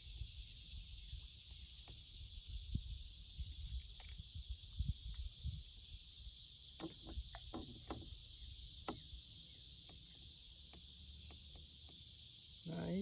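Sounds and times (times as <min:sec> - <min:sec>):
high insect drone: 0:00.0 - 0:13.0
gear knocking in plastic kayak: 0:06.8 - 0:08.1.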